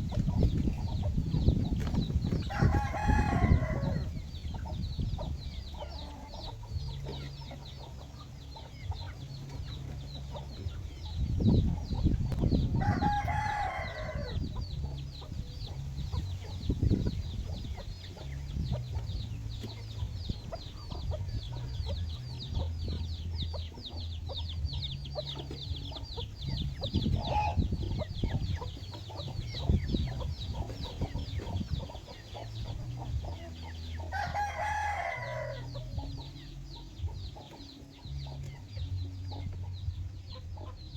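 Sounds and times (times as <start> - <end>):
hens clucking: 0.0 - 40.9
rooster crowing: 2.5 - 4.1, 12.8 - 14.4, 34.1 - 35.7.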